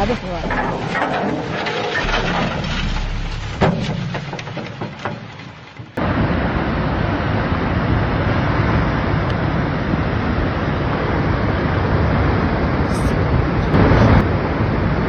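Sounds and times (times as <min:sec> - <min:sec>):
sharp cracks and knocks: 0:00.4 - 0:06.0.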